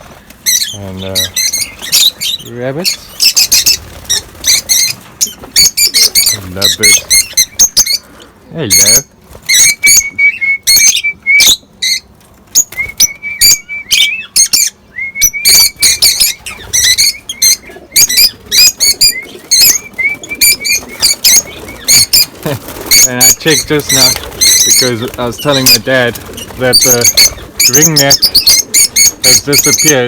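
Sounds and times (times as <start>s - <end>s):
lovebirds chirping: 0.0s - 30.0s.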